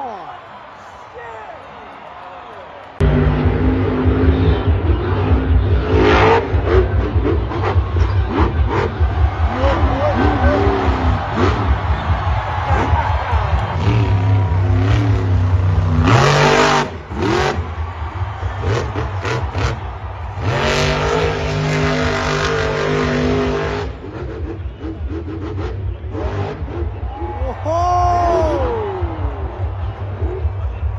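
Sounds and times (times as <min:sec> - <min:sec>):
truck engine revving: 0:02.8 - 0:27.4.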